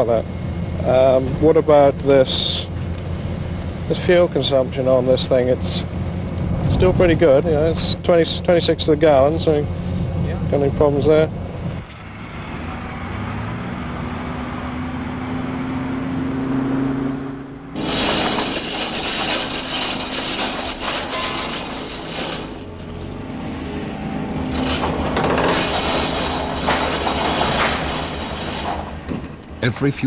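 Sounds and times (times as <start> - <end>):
loud clattering in a factory: 17.8 - 23.2, 24.4 - 29.4.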